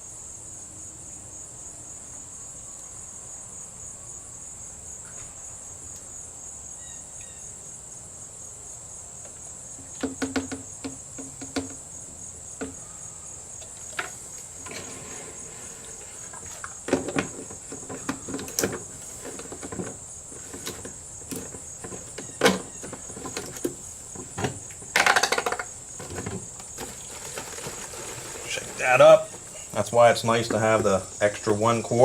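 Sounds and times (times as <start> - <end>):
crickets chirring: 0.0 - 32.0
plastic containers clicking and rattling: 15.8 - 29.7.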